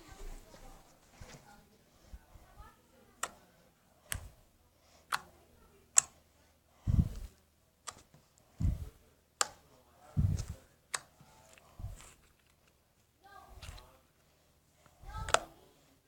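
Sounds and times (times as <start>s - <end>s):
slime dull thuds: 8.6s - 8.9s, 10.2s - 10.6s, 15.0s - 15.5s.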